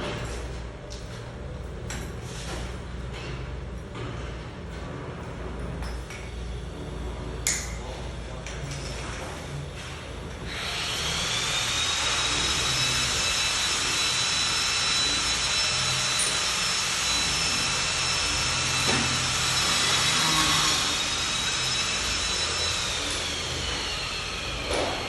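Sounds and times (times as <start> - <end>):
electric motor whine: 10.5 - 25.0.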